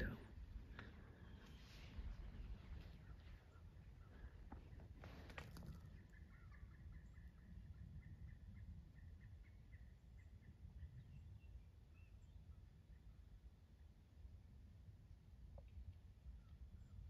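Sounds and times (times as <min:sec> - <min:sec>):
wind rumble: 0:00.0 - 0:12.5.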